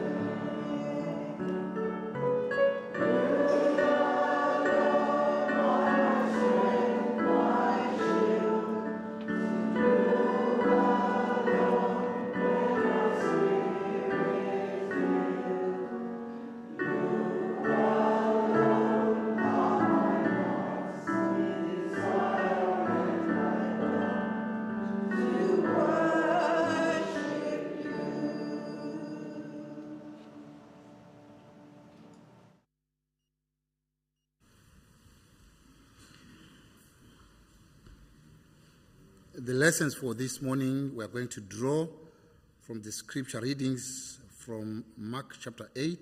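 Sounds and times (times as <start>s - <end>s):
choir singing a hymn: 0.0s - 31.9s.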